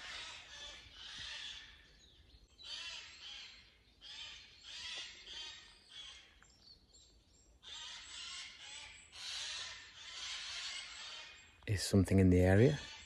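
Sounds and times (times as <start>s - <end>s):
birds chattering harsh calls: 0.0s - 13.0s.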